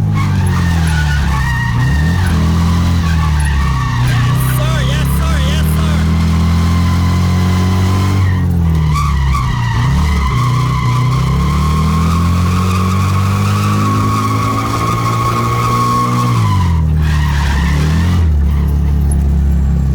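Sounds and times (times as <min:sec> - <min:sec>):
tyres squealing: 0:00.2 - 0:07.1
car engine revving high: 0:01.2 - 0:18.2.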